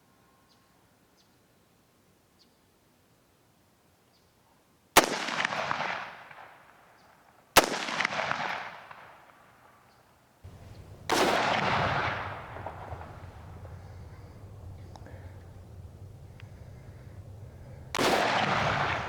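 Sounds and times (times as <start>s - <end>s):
rifle shots echoing: 5.0s - 6.4s, 7.6s - 9.1s, 10.5s - 19.0s.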